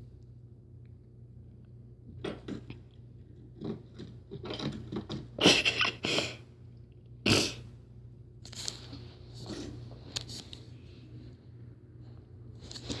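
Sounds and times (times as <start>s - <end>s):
fidget spinner scraping and clattering: 3.3s - 5.4s.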